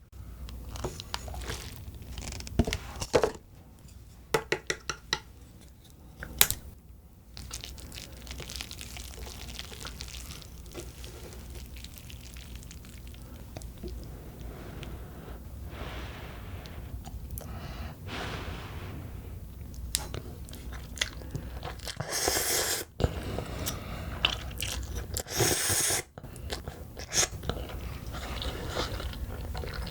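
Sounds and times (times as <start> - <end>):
wet chewing and mouth sounds: 0.7 - 2.6, 7.4 - 15.0, 19.5 - 29.9.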